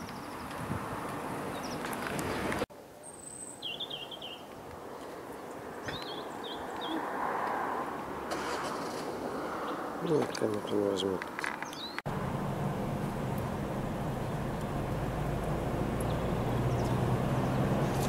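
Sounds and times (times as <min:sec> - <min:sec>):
small birds chirping: 0:01.5 - 0:07.1, 0:09.6 - 0:12.1, 0:13.3 - 0:18.0.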